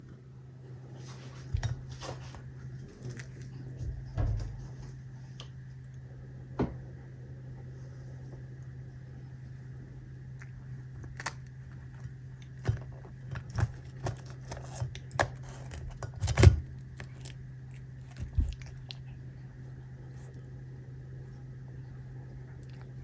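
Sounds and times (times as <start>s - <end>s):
low electrical hum: 0.0s - 23.0s
cat crunching dried fish: 1.2s - 5.0s, 10.2s - 21.2s, 22.1s - 23.0s.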